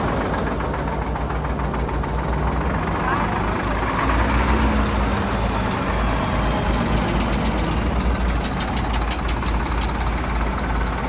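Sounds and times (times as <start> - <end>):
diesel truck engine running: 0.0 - 11.0
sharp high clicks: 6.5 - 10.8.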